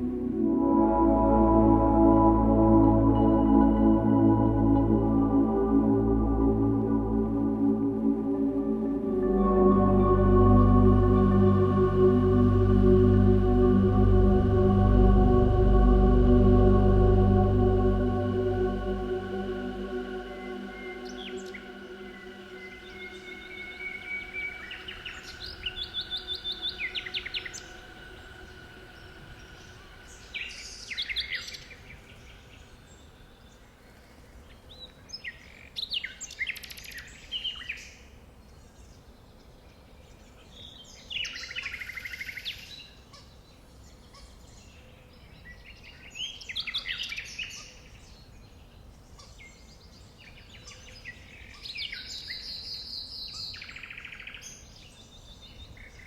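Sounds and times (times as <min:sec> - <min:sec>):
held music notes: 0:00.0 - 0:32.1
faint outdoor background noise: 0:00.0 - 0:56.0.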